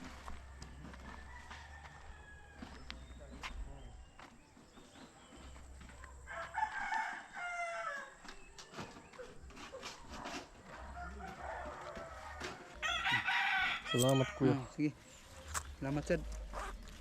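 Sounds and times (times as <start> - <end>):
rooster crowing: 0.1 - 2.8, 6.3 - 8.2, 10.9 - 14.7.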